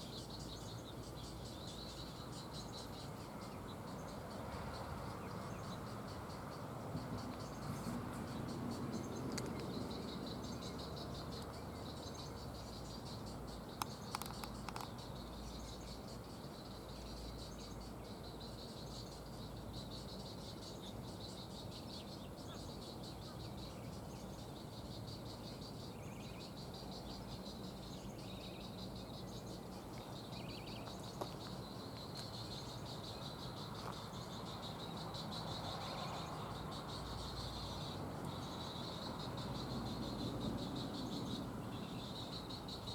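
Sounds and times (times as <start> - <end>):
insects trilling: 0.0 - 42.9
sharp clicks: 13.8 - 14.9.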